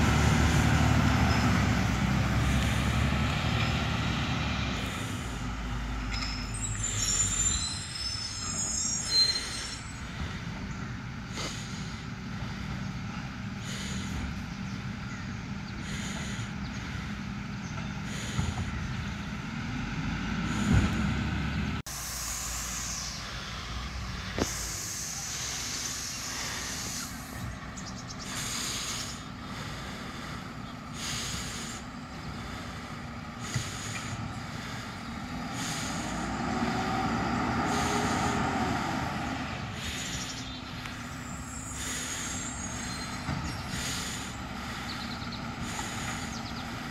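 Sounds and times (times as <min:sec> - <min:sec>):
garbage truck engine droning: 0:00.0 - 0:46.9
air brake hiss: 0:21.9 - 0:27.4.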